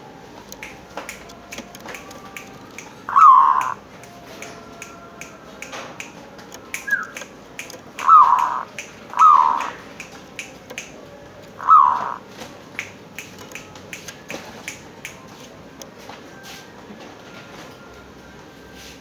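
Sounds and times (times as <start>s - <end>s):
dove cooing: 1.8s - 3.8s, 6.3s - 9.9s, 11.6s - 12.2s
faint sharp ticks: 3.6s - 11.6s, 12.8s - 15.2s.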